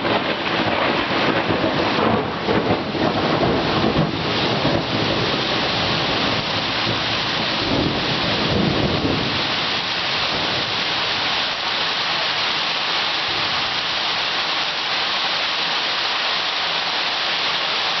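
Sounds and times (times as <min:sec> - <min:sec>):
thunder rumbling: 0:00.0 - 0:11.4
heavy rain falling: 0:00.0 - 0:18.0.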